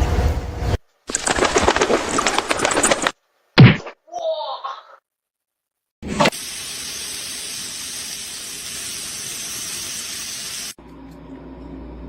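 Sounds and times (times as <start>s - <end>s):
steady hissing: 6.4s - 10.8s.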